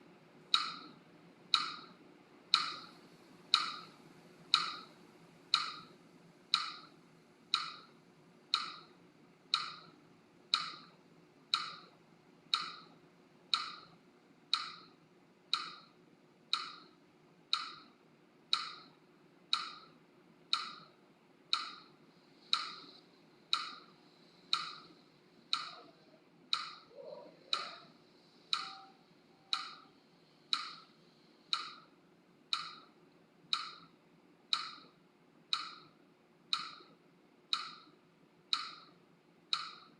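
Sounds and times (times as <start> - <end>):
metronome ticking: 0.5 - 0.9, 1.5 - 1.9, 2.5 - 2.9, 3.5 - 3.9, 4.5 - 4.9, 5.5 - 5.9, 6.5 - 6.9, 7.5 - 7.9, 8.5 - 8.9, 9.5 - 9.9, 10.5 - 10.9, 11.5 - 11.9, 12.5 - 12.9, 13.5 - 14.9, 15.5 - 15.9, 16.5 - 16.9, 17.5 - 17.9, 18.5 - 18.9, 19.5 - 19.9, 20.5 - 20.9, 21.5 - 21.9, 22.5 - 23.8, 24.5 - 24.9, 25.5 - 25.9, 28.5 - 29.9, 31.5 - 31.9, 32.5 - 32.9, 33.5 - 33.9, 34.5 - 34.9, 35.5 - 35.9, 36.5 - 36.9, 37.5 - 37.9, 38.5 - 38.9, 39.5 - 39.9.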